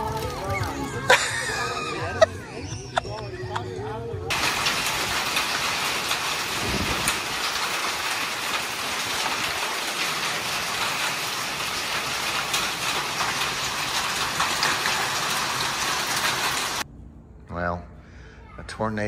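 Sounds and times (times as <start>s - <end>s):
heavy rain on wet ground: 0.0s - 2.3s, 4.3s - 16.8s.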